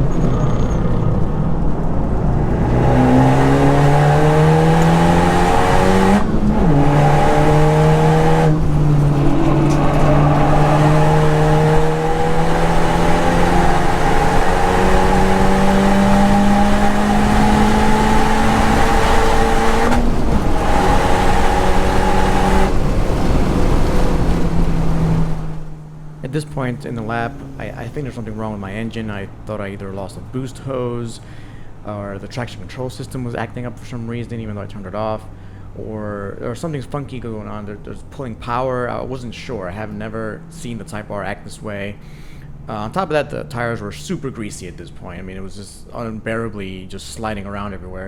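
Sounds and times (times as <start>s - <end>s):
car engine revving at full throttle: 0.0s - 28.0s.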